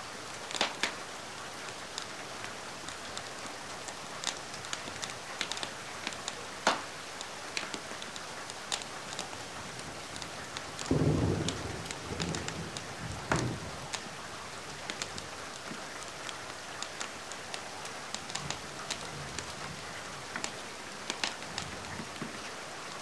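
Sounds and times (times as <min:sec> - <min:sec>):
steady rain: 0:00.0 - 0:23.0
wood fire crackling: 0:00.2 - 0:23.0
sharp thunder crack: 0:10.9 - 0:13.7
thunder rumble: 0:10.9 - 0:14.0.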